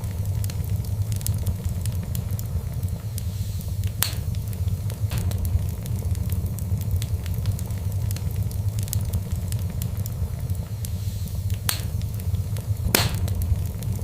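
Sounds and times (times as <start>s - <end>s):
fire crackling: 0.0s - 14.0s
loud fire pops: 0.0s - 14.0s.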